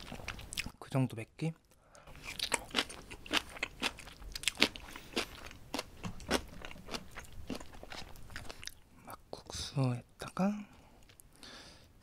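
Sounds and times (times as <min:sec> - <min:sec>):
person chewing: 0:00.0 - 0:00.8, 0:01.6 - 0:08.9, 0:11.0 - 0:11.4.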